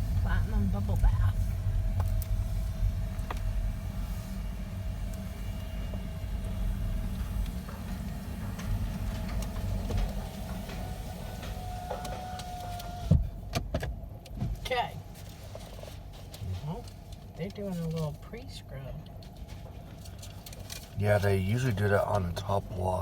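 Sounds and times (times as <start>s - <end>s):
faint steady whine: 0.0s - 13.5s
car wash machinery rumble: 0.0s - 23.0s.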